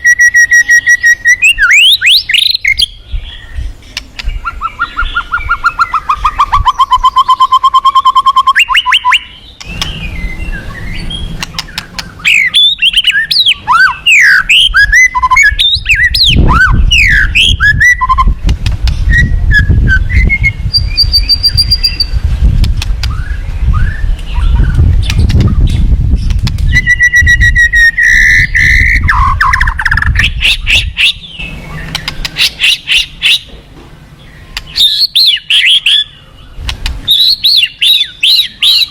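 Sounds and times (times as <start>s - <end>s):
bird singing trills and whistles: 0.0s - 22.2s, 23.0s - 33.5s, 34.2s - 38.9s.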